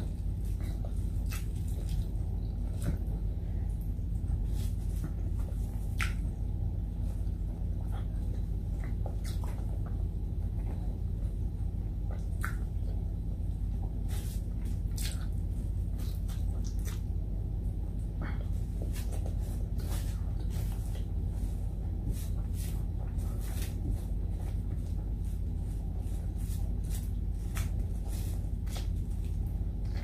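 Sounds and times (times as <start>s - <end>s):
chewing and mouth clicks: 0.0s - 3.9s, 5.4s - 6.3s, 7.8s - 10.8s, 12.0s - 13.1s, 13.8s - 17.2s
steady low hum: 0.0s - 30.0s.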